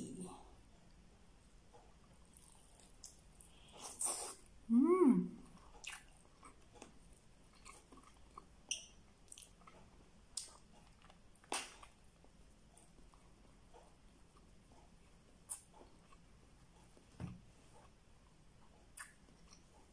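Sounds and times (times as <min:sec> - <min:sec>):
chewing and lip-smacking: 0:02.2 - 0:04.2, 0:05.4 - 0:12.0, 0:14.1 - 0:17.0, 0:17.8 - 0:19.9
person humming: 0:04.7 - 0:05.4.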